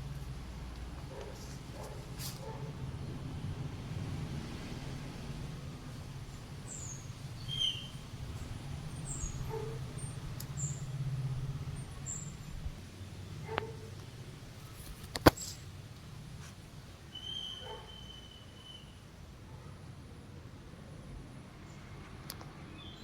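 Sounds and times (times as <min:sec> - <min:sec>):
small birds chirping: 0:05.9 - 0:15.8, 0:17.1 - 0:19.0
sharp click: 0:15.0 - 0:15.6.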